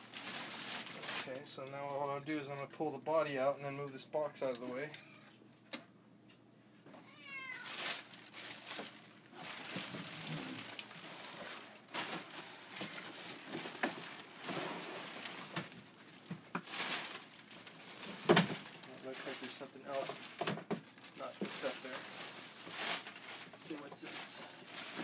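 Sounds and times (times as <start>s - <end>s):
cardboard and plastic rustling: 0.0s - 1.7s, 7.1s - 25.0s.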